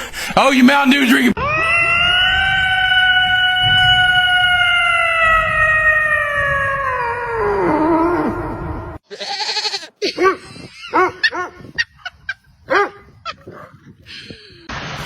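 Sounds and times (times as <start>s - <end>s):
dog howling: 1.4s - 9.0s.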